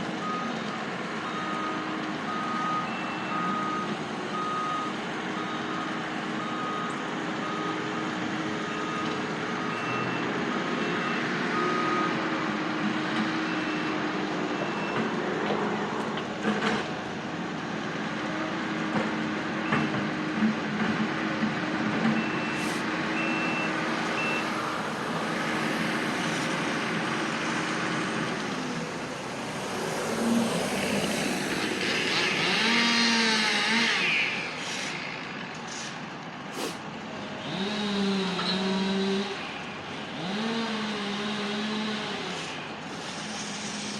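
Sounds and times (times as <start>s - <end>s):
vehicle reversing alarms beeping: 0.2s - 12.4s, 13.2s - 15.2s, 22.0s - 24.9s
engine running: 6.5s - 43.9s.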